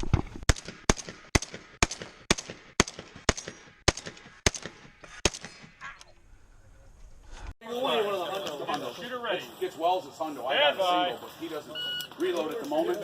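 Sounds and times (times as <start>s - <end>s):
shotgun shots: 0.5s - 5.8s.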